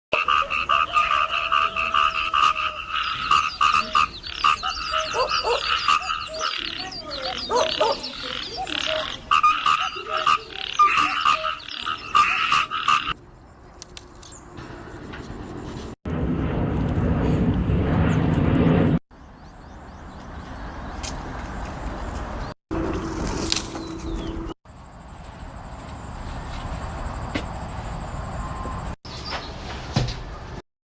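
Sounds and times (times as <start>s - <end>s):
frogs croaking in chorus: 0.1s - 13.2s
low rumbling noise: 16.1s - 20.8s.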